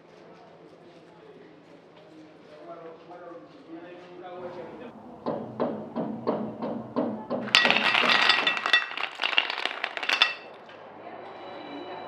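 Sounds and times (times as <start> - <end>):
glass and china clinking: 7.4 - 10.5.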